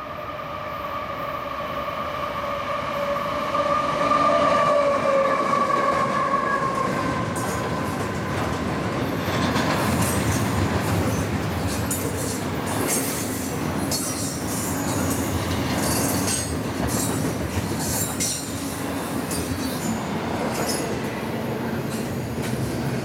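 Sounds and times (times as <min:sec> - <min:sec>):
train wheels rumbling and clicking: 0:05.5 - 0:23.0.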